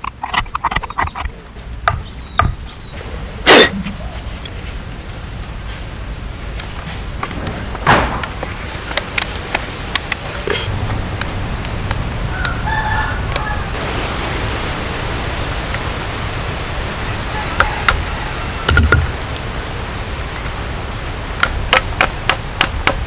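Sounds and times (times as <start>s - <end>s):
steady hissing background noise: 0.0s - 23.0s
rooster crowing: 12.2s - 13.8s, 17.0s - 19.4s
knocks and taps: 18.7s - 19.1s, 21.4s - 23.0s.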